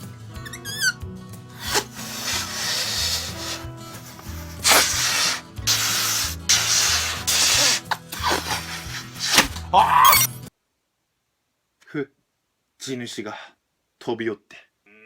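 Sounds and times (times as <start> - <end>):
background music: 0.0 - 10.5
breath blowing up balloon: 0.6 - 1.0, 1.6 - 10.3.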